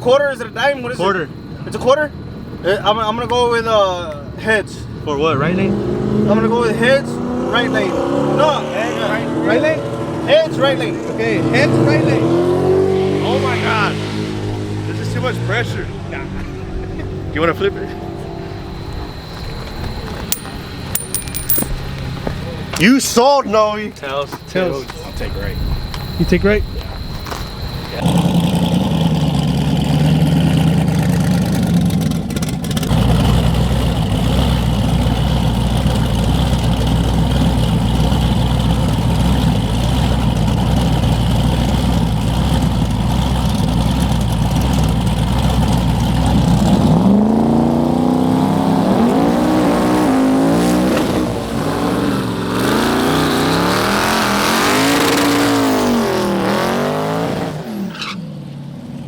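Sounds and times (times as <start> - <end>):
drag car engines revving: 4.9 - 19.0, 27.4 - 59.0
drag car engines idling: 30.6 - 46.4.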